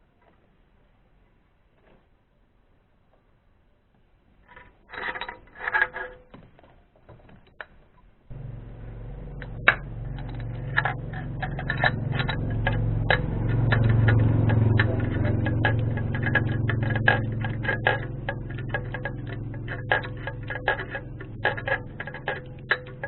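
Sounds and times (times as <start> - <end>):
car engine idling: 8.3 - 23.0
metallic clinks: 8.3 - 23.0.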